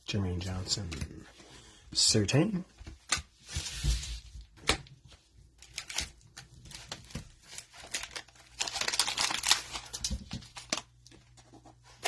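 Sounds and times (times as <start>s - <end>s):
cards clicking and wrapper crinkling: 5.6s - 11.6s.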